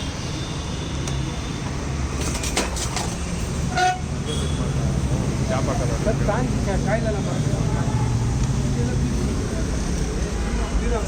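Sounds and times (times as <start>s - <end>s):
street traffic rumbling: 0.0s - 11.0s
vehicle horn toot: 3.7s - 4.7s.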